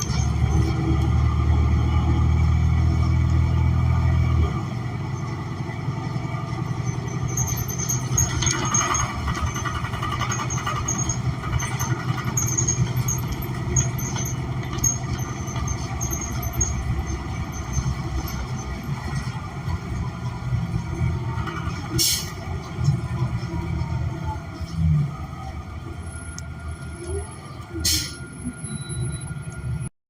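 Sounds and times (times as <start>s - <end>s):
bus cabin rumble: 0.0s - 29.9s
short high-pitched squeals: 27.8s - 29.8s.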